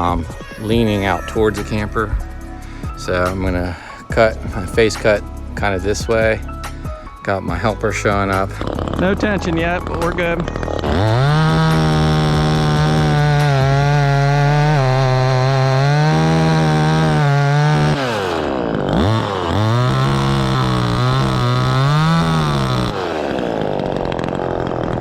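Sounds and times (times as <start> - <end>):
chainsaw cutting tree trunk: 0.0 - 25.0.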